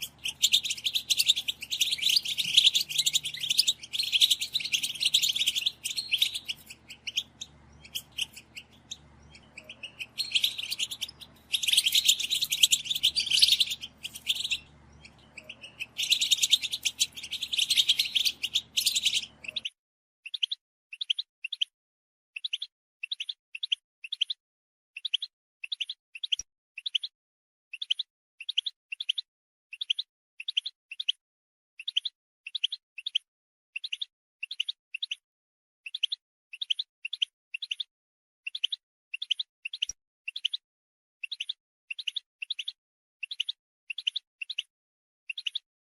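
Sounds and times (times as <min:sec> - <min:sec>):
finches twittering: 0:00.0 - 0:19.7
short bird calls: 0:00.0 - 0:19.8.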